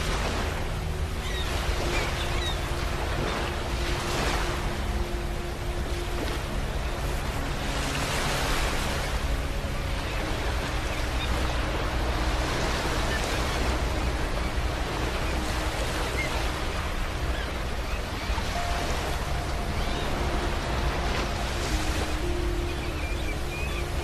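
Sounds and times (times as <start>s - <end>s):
ocean waves washing onto beach: 0.0s - 24.0s.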